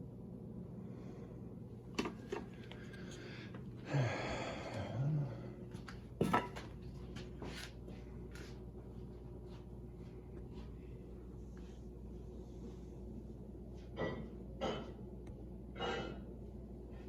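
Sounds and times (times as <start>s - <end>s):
breathy vocal grunt: 3.8s - 5.6s.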